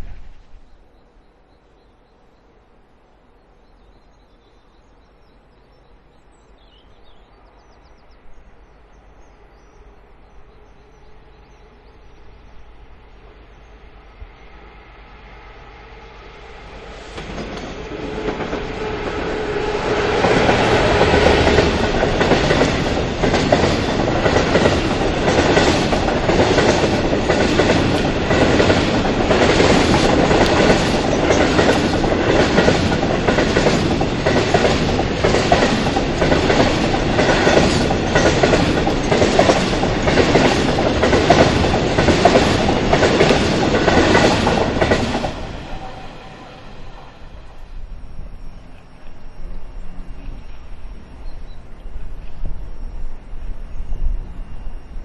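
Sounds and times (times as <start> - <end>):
train passing: 0.0 - 55.0
wheels clicking over rail joints: 20.2 - 45.8.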